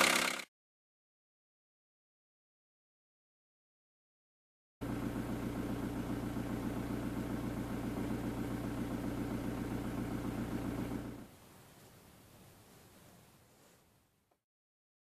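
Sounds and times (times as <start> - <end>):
diesel engine idling: 4.8 - 11.3.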